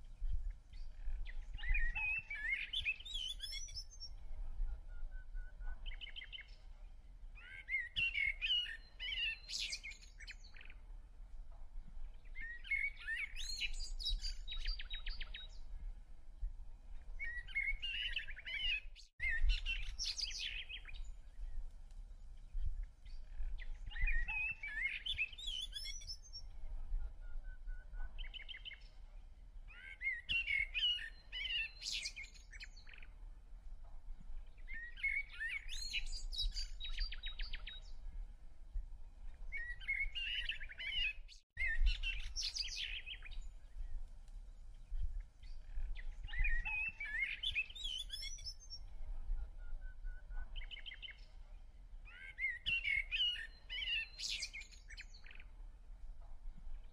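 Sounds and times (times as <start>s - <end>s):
songbird singing warbled phrases: 0.7s - 4.2s, 4.9s - 6.6s, 7.4s - 10.9s, 12.3s - 15.7s, 17.2s - 21.6s, 22.5s - 26.5s, 27.2s - 28.9s, 29.7s - 33.2s, 34.6s - 38.0s, 39.5s - 44.0s, 44.9s - 48.9s, 49.6s - 55.6s.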